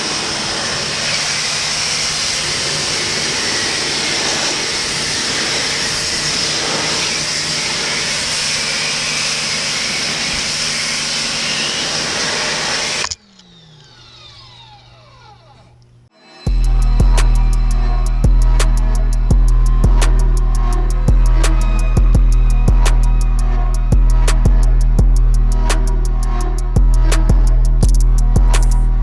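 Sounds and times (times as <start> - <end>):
water jet hissing: 0.0 - 13.0
pressure washer motor hum: 0.0 - 16.1
faint low hum with falling tones: 13.2 - 29.0.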